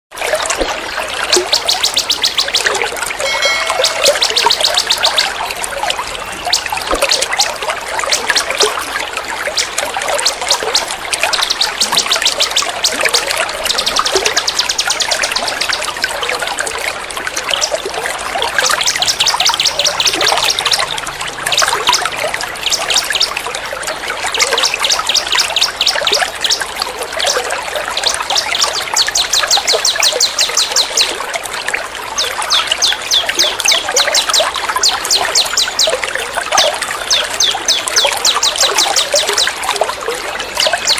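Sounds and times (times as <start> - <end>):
trickling water: 0.1 - 40.9
high-pitched bird trills: 1.8 - 5.4.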